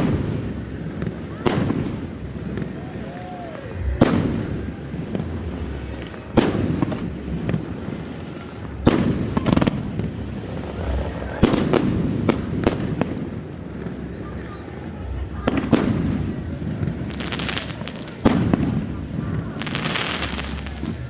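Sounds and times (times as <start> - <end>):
fireworks bangs: 0.0 - 21.0
low rumbling echo: 3.8 - 17.1.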